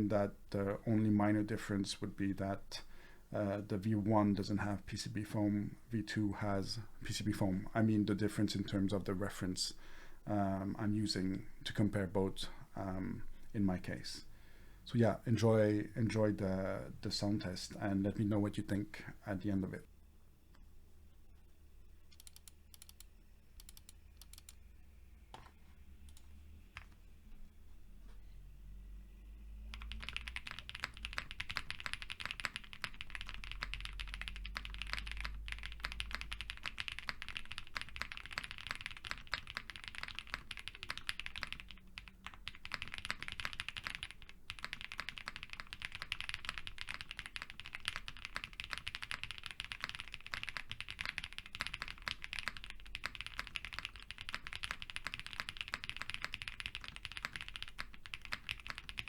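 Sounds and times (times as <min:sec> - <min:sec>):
fast typing on mechanical keyboard: 0:29.7 - 0:59.0.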